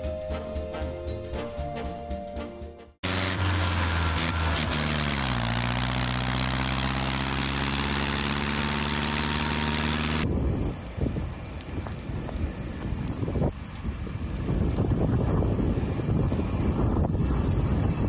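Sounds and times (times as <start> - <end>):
engine running: 3.0 - 10.3.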